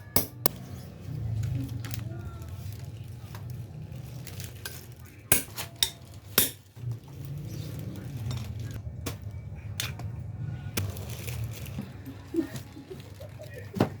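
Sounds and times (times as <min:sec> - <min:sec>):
steady low hum: 0:08.0 - 0:12.9.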